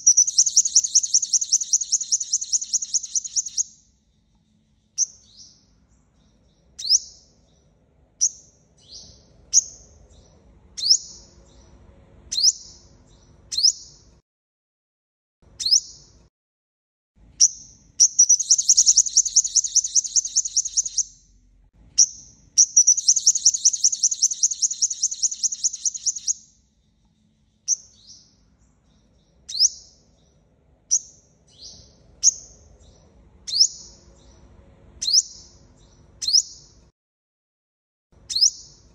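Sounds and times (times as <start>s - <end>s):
bird rapid trills: 0.0s - 3.6s, 18.1s - 21.1s, 22.6s - 26.4s
sunbird chirps: 0.0s - 14.1s, 15.6s - 16.2s, 17.4s - 21.4s, 22.0s - 36.8s, 38.2s - 38.9s.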